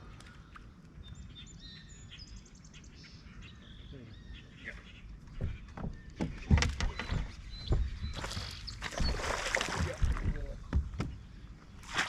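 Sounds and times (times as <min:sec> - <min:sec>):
thumps against a boat: 0:05.3 - 0:11.4
water splashing: 0:08.1 - 0:10.6, 0:11.7 - 0:12.0.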